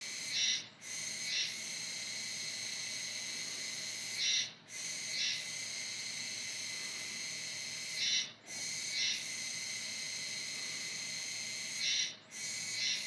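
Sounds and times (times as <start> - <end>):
cicada buzzing call: 0.1 - 13.0.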